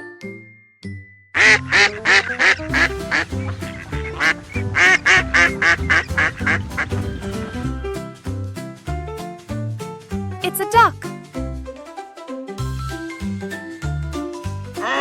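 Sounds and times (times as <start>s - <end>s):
light background music: 0.0s - 15.0s
duck quacking rapidly: 1.4s - 7.0s.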